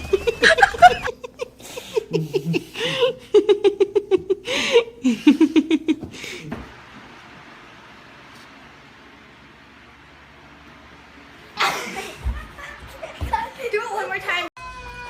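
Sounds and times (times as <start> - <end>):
person laughing hard: 0.0 - 6.5, 11.6 - 13.5.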